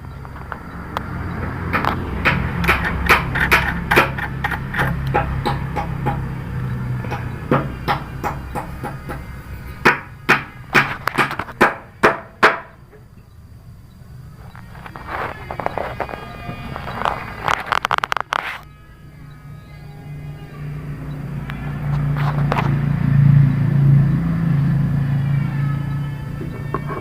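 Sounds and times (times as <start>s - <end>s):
sharp knocks and clinks on saw: 1.4s - 6.3s, 7.0s - 13.3s
low hum: 12.9s - 27.0s.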